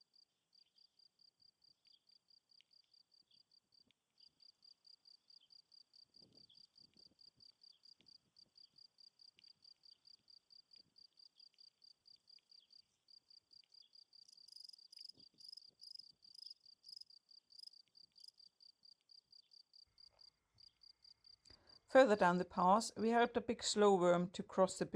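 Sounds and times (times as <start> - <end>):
faint rapid insect chirping: 0.1 - 21.9.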